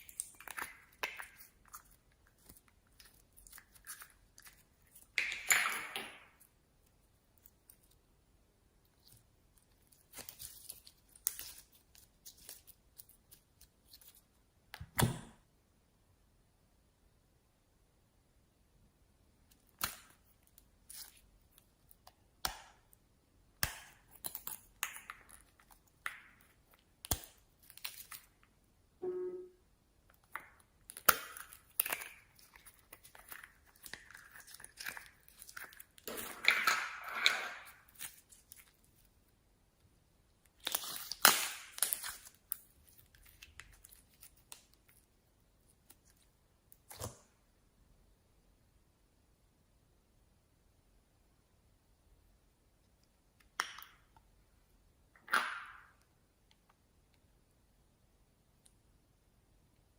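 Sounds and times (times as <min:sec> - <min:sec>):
slime crackling squelches: 0:30.1 - 0:39.3.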